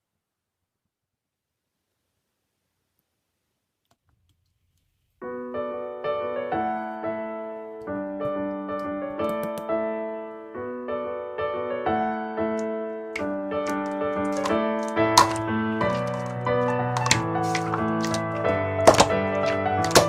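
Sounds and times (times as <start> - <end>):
solo piano music: 5.2 - 20.0.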